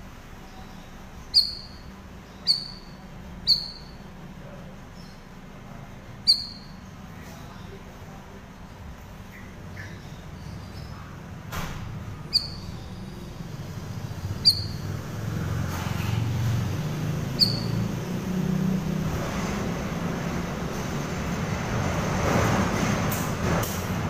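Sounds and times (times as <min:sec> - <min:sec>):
vehicle rumble: 0:00.0 - 0:24.0
bird chirps: 0:00.3 - 0:04.2, 0:06.1 - 0:07.8, 0:09.2 - 0:11.3, 0:12.0 - 0:19.3.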